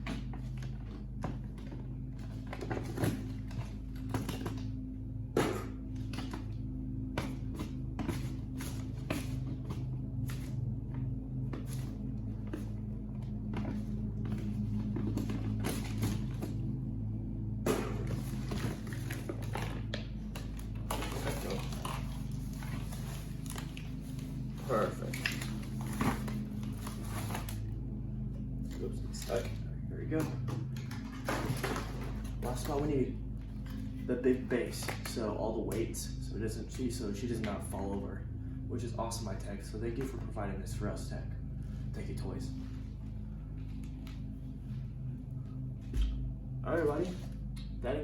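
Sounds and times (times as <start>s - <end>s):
steady low hum: 0.0s - 48.0s
cardboard packaging rustling: 17.8s - 27.6s.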